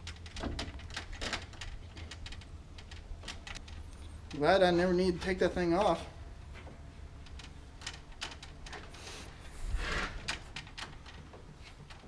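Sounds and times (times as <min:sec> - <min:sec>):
scraping rustle: 0:07.3 - 0:12.0.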